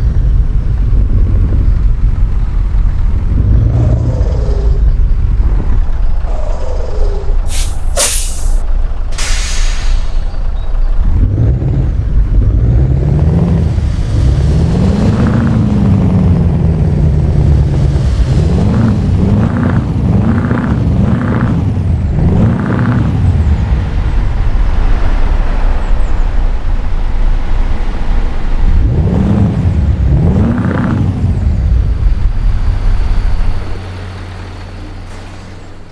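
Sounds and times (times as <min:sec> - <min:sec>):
diesel truck engine revving: 0:09.2 - 0:25.2, 0:27.4 - 0:35.9.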